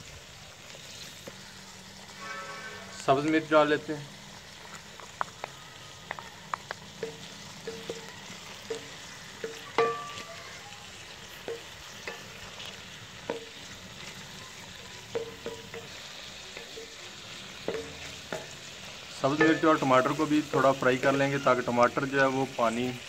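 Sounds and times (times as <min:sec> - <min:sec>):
vegetables sizzling in oil: 0:00.0 - 0:23.0
spoon clinking and scraping pan: 0:07.0 - 0:21.2.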